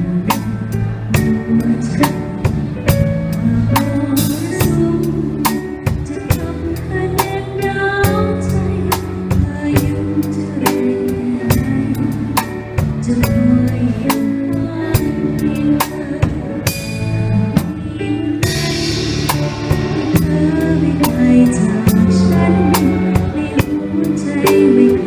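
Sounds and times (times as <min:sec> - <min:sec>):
drums keeping a beat: 0:00.0 - 0:25.0
orchestra playing: 0:15.0 - 0:25.0.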